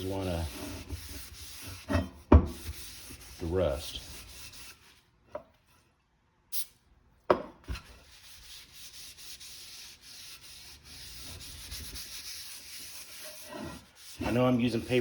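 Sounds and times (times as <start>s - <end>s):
paper towel rubbing metal: 0.0s - 2.0s, 2.6s - 5.0s, 8.0s - 15.0s.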